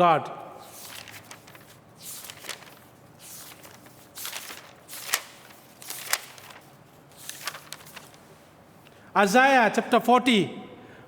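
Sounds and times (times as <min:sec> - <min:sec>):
handling noise rustles and clicks: 0:00.8 - 0:08.2.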